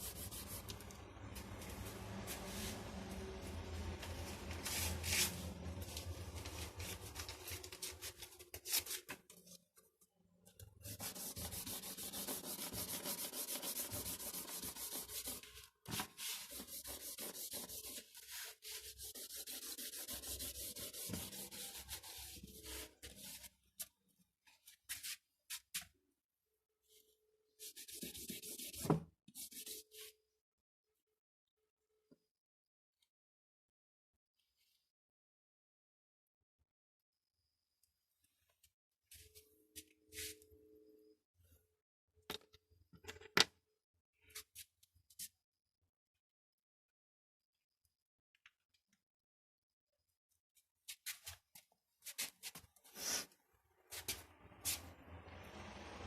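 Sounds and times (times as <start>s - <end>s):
pencil scrubbing on paper: 0.0s - 0.7s, 10.8s - 23.5s, 27.6s - 29.8s, 52.1s - 53.3s.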